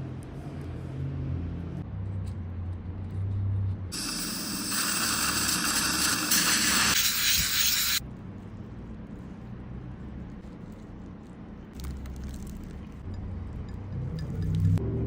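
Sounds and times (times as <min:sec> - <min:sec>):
dental equipment hum: 0:03.9 - 0:08.0
dental spray hissing: 0:03.9 - 0:08.0.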